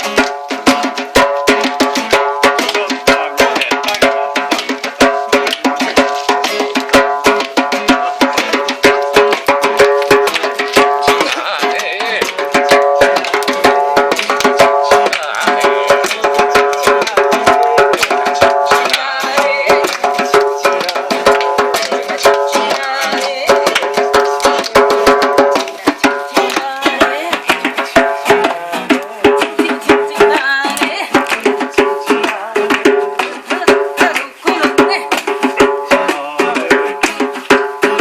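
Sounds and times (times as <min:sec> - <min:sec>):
acoustic guitar strumming: 0:00.0 - 0:38.0
djembe beating: 0:00.0 - 0:38.0.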